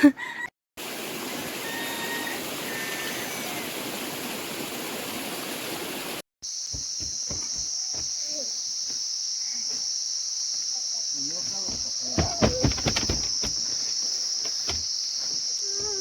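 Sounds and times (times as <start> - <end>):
high insect drone: 6.4 - 16.0
low thumps: 6.8 - 8.1, 11.7 - 13.7.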